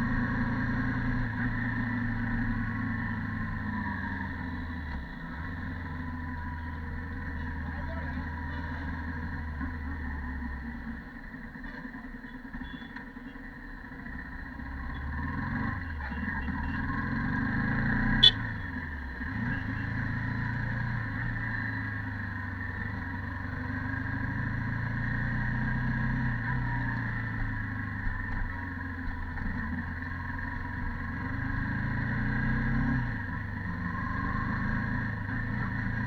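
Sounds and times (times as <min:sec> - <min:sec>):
motorcycle engine accelerating: 0:00.0 - 0:12.8, 0:13.8 - 0:36.0.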